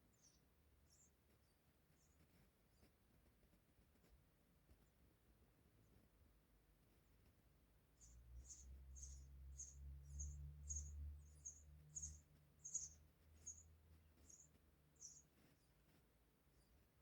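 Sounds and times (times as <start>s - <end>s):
nestlings chirping: 8.0s - 16.8s.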